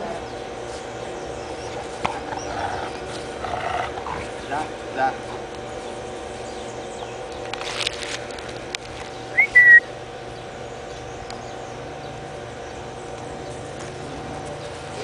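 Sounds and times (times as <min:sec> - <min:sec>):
high-pitched whistling tone: 0:09.4 - 0:09.9.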